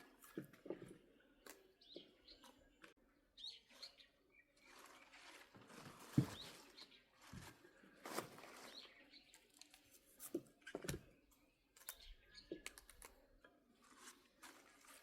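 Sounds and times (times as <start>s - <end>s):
faint bird chirps: 0.0s - 5.4s.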